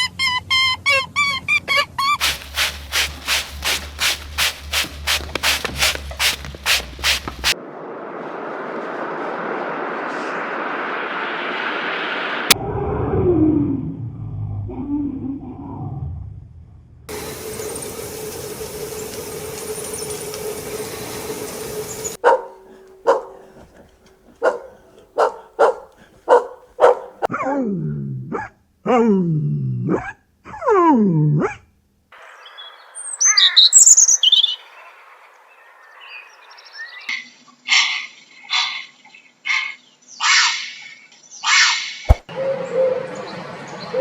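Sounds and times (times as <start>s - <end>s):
dog barking: 22.2s - 27.3s.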